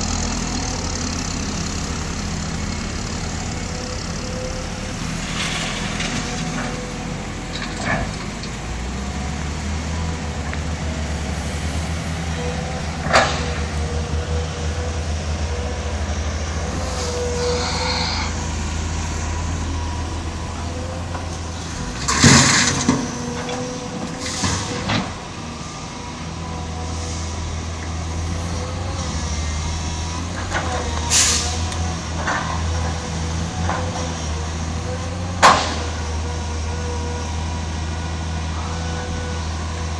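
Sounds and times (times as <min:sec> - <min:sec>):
truck diesel engine running: 0:00.0 - 0:39.9
air brake hiss: 0:16.9 - 0:18.5, 0:24.2 - 0:24.9, 0:31.1 - 0:31.7.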